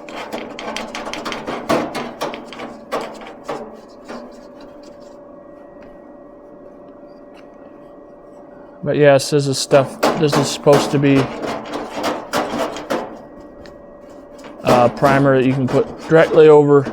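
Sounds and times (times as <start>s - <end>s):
objects knocking and clattering: 0.0s - 5.1s, 9.7s - 16.9s
faint steady hum: 0.0s - 16.9s.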